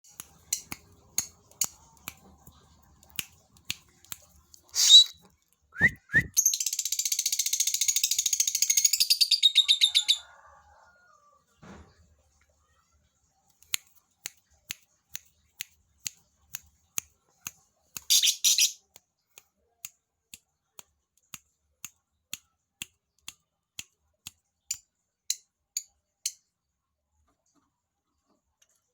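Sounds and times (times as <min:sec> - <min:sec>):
rapid high bird chatter: 0:04.7 - 0:05.2, 0:18.1 - 0:18.8
songbird chirping: 0:18.0 - 0:18.9.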